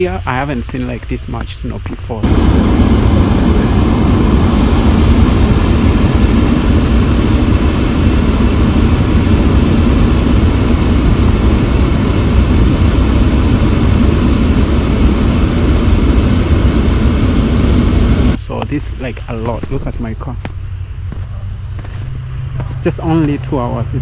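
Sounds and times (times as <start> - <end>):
wind buffeting microphone: 2.2 - 18.4.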